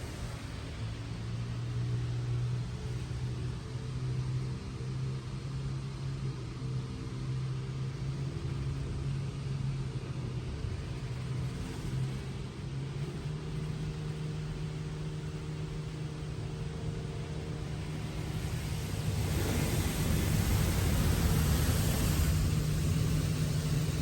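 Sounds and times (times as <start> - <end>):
car wash mechanical hum: 0.0 - 24.0
hiss of spray: 17.6 - 24.0.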